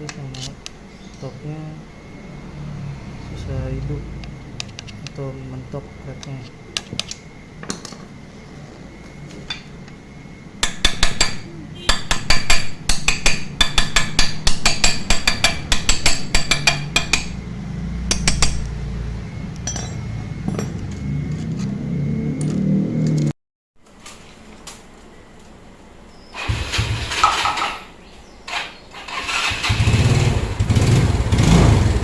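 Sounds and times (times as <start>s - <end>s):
hand tools clinking on metal: 19.6s - 20.0s.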